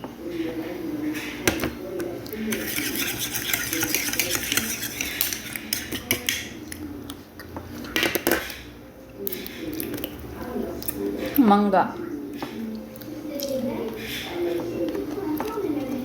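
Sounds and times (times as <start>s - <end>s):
utensils scraping a dish: 2.3s - 6.8s.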